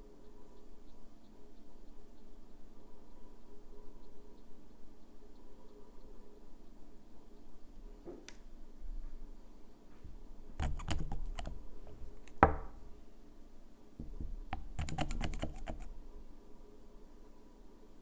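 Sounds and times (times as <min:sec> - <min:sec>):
manicure items clicking on hard surface: 0:10.6 - 0:12.7, 0:14.5 - 0:15.9.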